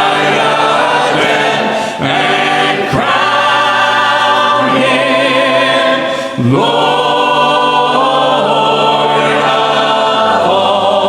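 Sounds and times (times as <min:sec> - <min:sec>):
congregation singing a hymn: 0:00.0 - 0:11.0.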